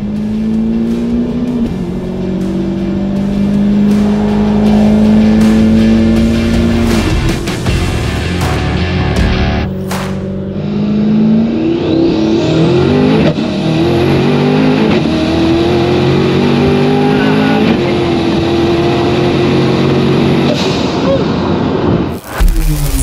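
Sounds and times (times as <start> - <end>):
car engine revving: 0.0 - 23.0
turbo whine: 3.3 - 7.9, 22.1 - 23.0.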